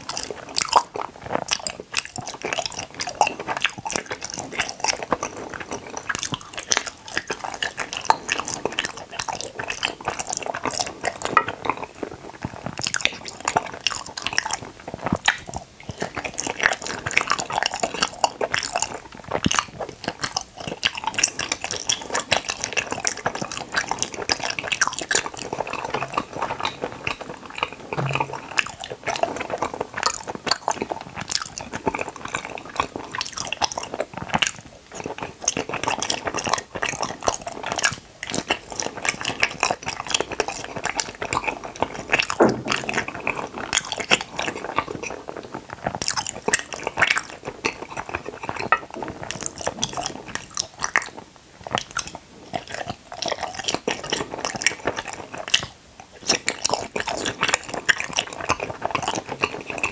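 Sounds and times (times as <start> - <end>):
person chewing gummies: 0.0 - 59.9
wet squishing mouth sounds: 0.0 - 59.9.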